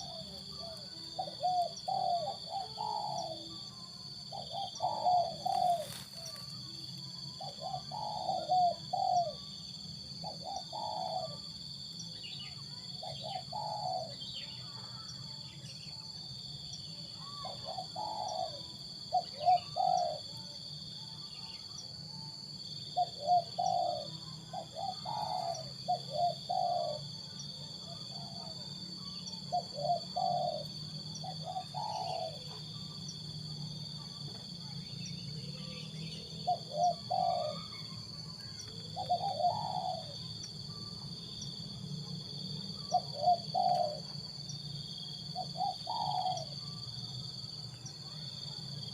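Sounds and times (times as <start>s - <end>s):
dove cooing: 0.0s - 9.5s, 10.2s - 11.6s, 13.0s - 15.0s, 17.2s - 20.4s, 22.9s - 33.0s, 35.6s - 41.0s, 42.7s - 44.3s, 45.3s - 47.0s.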